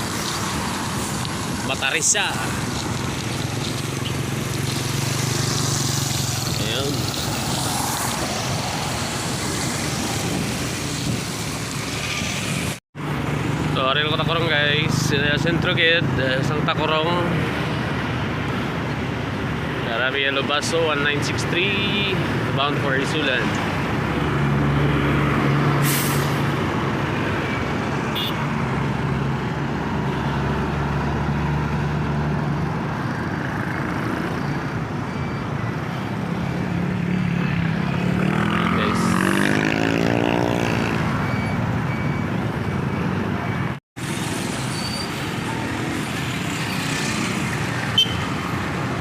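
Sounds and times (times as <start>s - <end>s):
road traffic: 0.0s - 49.0s
vehicle engine revving: 37.1s - 41.2s.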